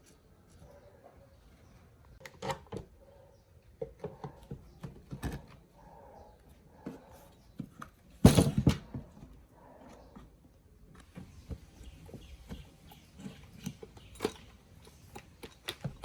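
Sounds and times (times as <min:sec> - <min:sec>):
tools and parts clicking: 0:12.5 - 0:16.0.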